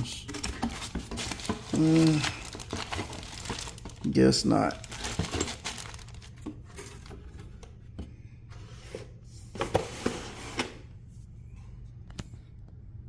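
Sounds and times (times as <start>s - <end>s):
packaging rustling: 0.1s - 7.6s.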